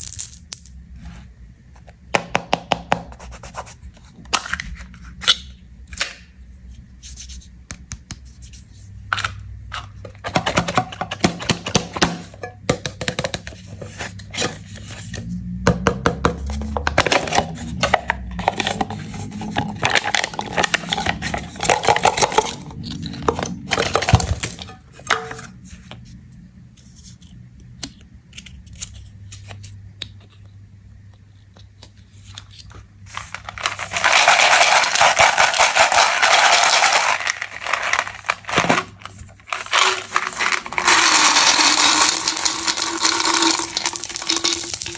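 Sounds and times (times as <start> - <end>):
plastic candy wrappers crinkling: 16.6 - 24.8, 31.6 - 44.9.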